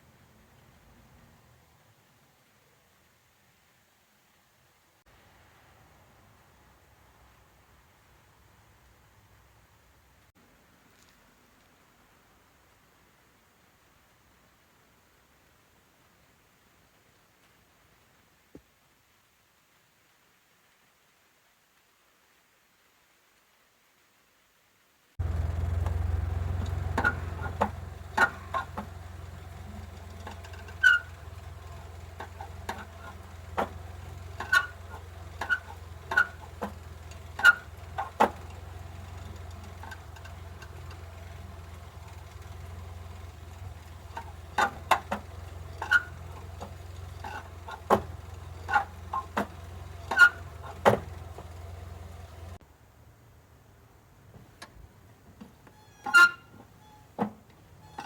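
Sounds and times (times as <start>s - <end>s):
engine idling hum: 25.2s - 52.6s
pedal linkage clicks and squeaks: 25.2s - 52.6s, 55.5s - 58.0s.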